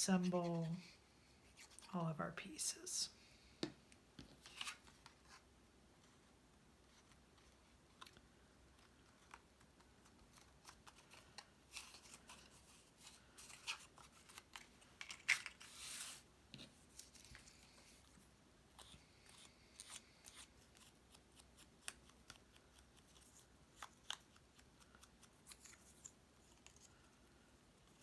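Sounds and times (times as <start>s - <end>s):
faint taps and clicks: 3.6s - 4.4s
paper rustling: 8.8s - 18.1s.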